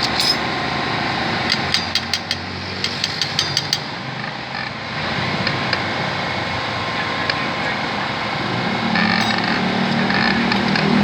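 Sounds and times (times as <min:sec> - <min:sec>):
metal tool clicks and taps: 0:00.0 - 0:00.5, 0:01.5 - 0:03.9, 0:09.0 - 0:10.9.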